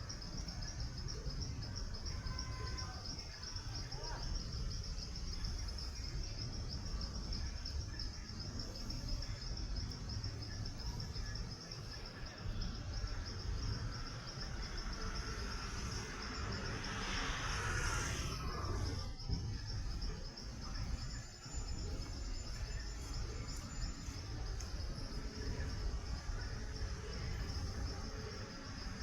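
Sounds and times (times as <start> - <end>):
constant low rumble: 0.0 - 29.0
insects trilling: 0.0 - 29.0
broad hiss: 13.1 - 19.4.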